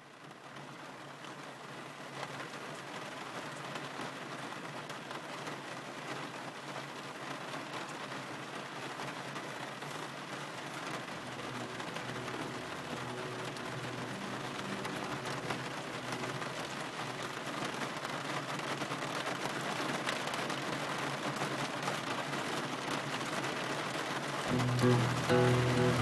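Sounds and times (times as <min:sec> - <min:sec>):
steady rain: 0:00.0 - 0:26.0
faint low held tones: 0:24.5 - 0:26.0.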